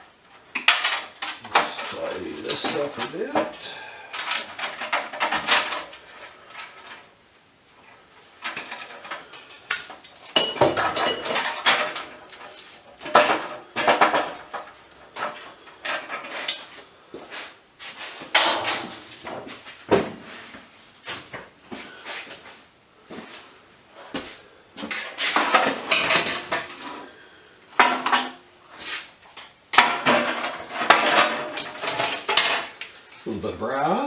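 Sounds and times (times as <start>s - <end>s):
scrap metal clinking and clattering: 0.4s - 7.1s, 7.9s - 17.4s, 18.1s - 19.7s, 24.8s - 28.5s, 29.3s - 33.5s.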